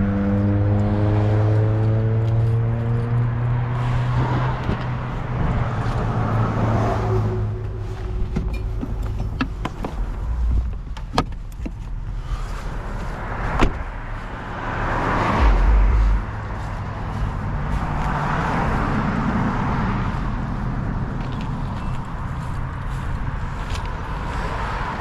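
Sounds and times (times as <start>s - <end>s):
truck engine running: 5.0s - 24.4s
deep rumble: 5.1s - 21.6s
sharp knocks: 15.4s - 16.6s.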